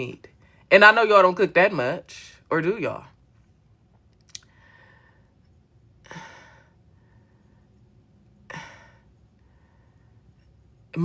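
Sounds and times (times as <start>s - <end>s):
person sighing: 6.1s - 6.7s.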